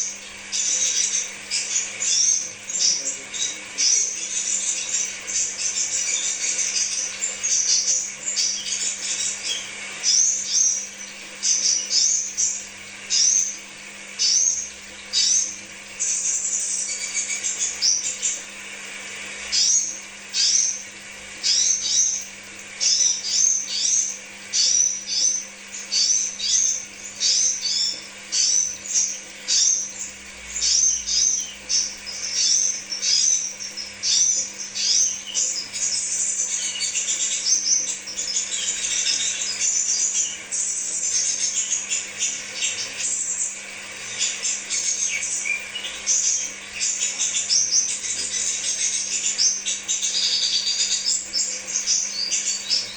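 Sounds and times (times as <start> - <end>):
steady low hum: 0.0 - 52.9
bird chirping: 22.8 - 52.9.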